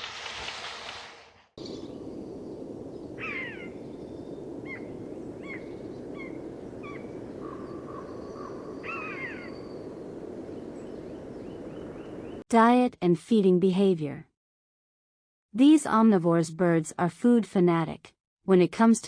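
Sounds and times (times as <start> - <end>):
downward-sliding bird calls: 1.6 - 12.4
steady rushing background: 1.6 - 12.4.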